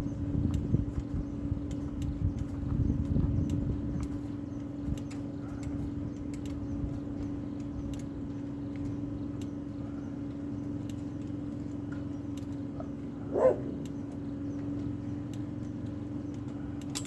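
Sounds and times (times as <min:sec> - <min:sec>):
steady low hum: 0:00.0 - 0:17.0
dog barking: 0:12.8 - 0:13.9.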